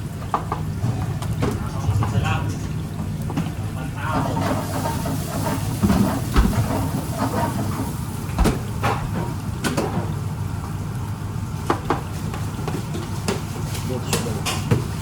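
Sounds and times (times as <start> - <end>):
low machine hum: 0.8 - 11.6.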